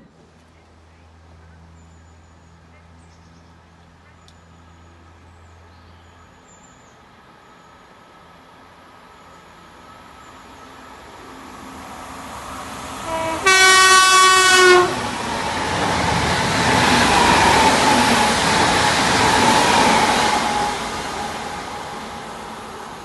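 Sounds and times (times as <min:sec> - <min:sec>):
train rushing past: 0:07.0 - 0:23.0
train horn: 0:13.0 - 0:15.2.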